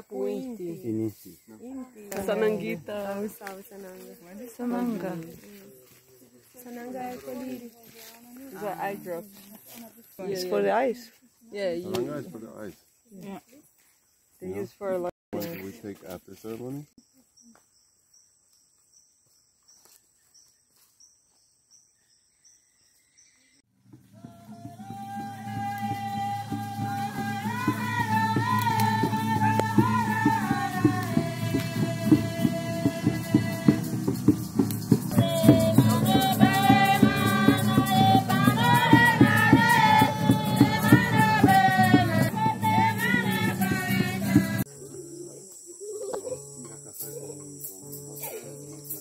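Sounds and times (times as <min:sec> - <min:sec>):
faint insects chirping: 0:00.0 - 0:23.6, 0:24.4 - 0:49.0
music: 0:23.7 - 0:44.7, 0:46.4 - 0:49.0
person singing: 0:24.2 - 0:34.1, 0:35.1 - 0:44.8
rattle shaken in a beat: 0:24.5 - 0:44.7, 0:46.8 - 0:49.0.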